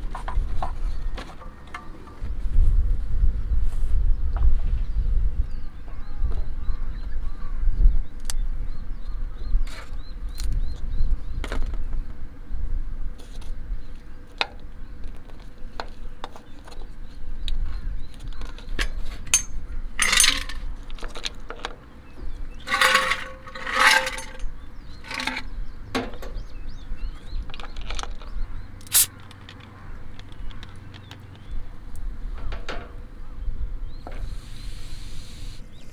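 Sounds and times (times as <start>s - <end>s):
wind rumble on microphone: 2.2s - 14.0s
drinkware and utensils clinking: 18.8s - 20.7s, 22.6s - 25.5s
rustling hissing bursts: 28.8s - 29.1s.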